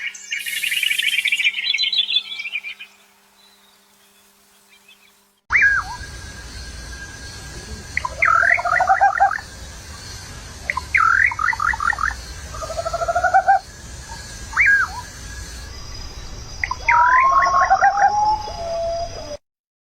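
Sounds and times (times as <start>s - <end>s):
songbird singing: 0.0s - 19.4s
bird trill: 4.7s - 19.4s.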